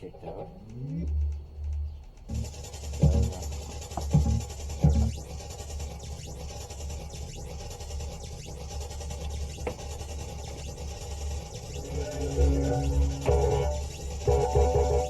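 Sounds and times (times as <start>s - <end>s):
low electronic hum: 0.2s - 5.2s, 9.2s - 15.0s
faint electronic clicks and sweeps: 0.6s - 15.0s
held electronic tones: 4.1s - 15.0s.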